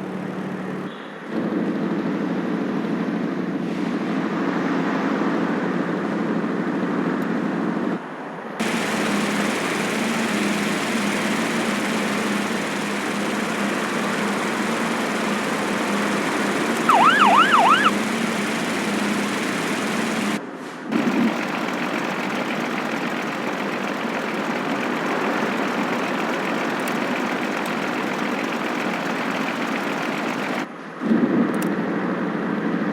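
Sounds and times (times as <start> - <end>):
car engine running: 8.6 - 30.7
siren-like warble: 11.5 - 20.4.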